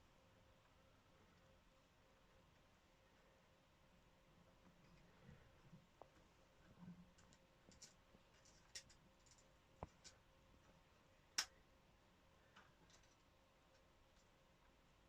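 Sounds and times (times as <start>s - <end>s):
small metal clicks: 7.1s - 10.2s, 12.5s - 14.4s.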